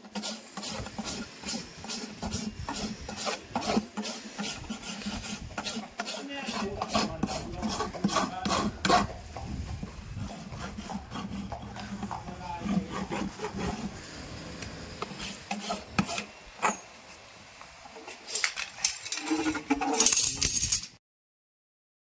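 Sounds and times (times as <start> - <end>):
rasp filing hoof: 0.0 - 17.2.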